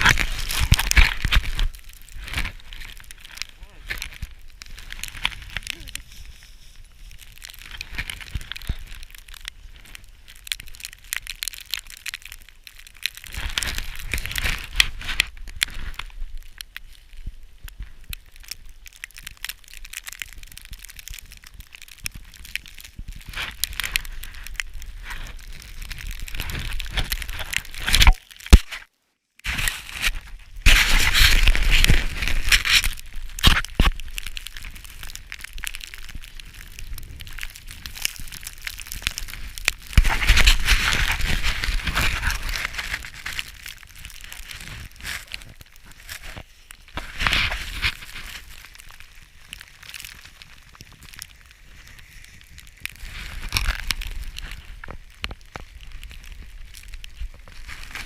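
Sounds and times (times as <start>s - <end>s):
footsteps crunching in snow: 0.0s - 8.9s, 29.5s - 35.0s, 35.7s - 54.8s.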